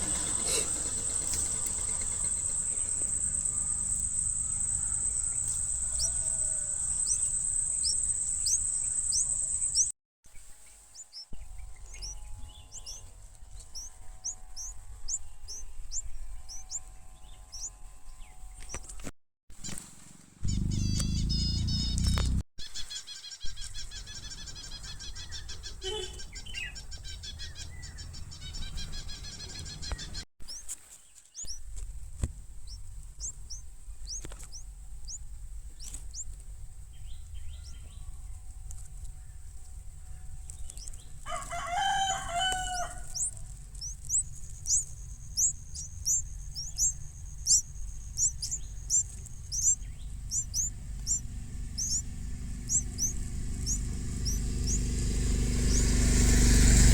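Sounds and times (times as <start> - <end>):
longer lower bird call: 0.0 - 9.9, 20.4 - 30.2, 40.7 - 56.9
low steady rumble: 0.0 - 9.9, 20.4 - 22.4, 31.5 - 56.9
nestlings cheeping: 0.0 - 9.9, 20.4 - 22.4, 32.6 - 38.0, 40.4 - 56.9.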